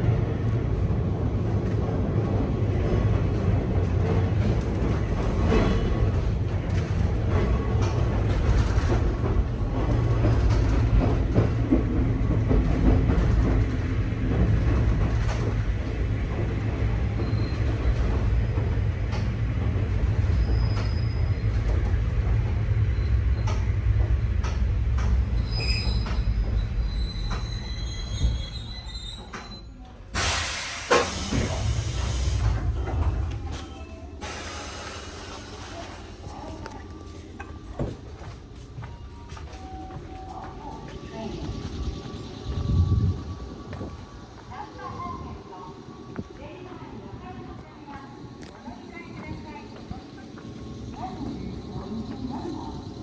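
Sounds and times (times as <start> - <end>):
electric train running rumble: 0.0 - 53.0
high brake squeals: 20.3 - 21.6, 25.4 - 31.3
air hiss: 30.2 - 32.6, 34.2 - 36.0.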